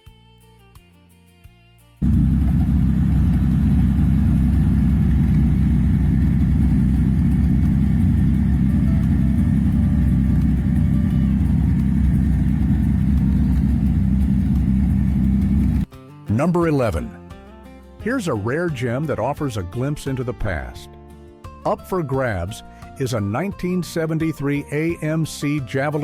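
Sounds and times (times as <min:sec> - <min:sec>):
car engine running: 0:02.0 - 0:15.9.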